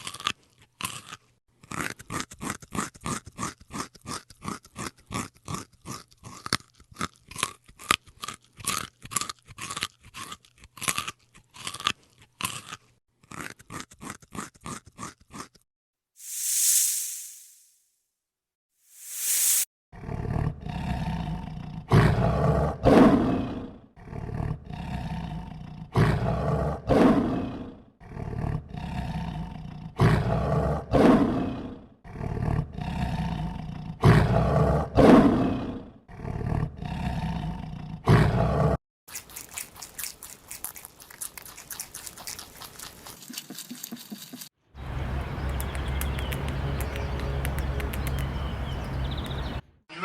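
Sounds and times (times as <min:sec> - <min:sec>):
big cat roaring: 0:20.0 - 0:38.8
low growling calls: 0:44.8 - 0:49.6.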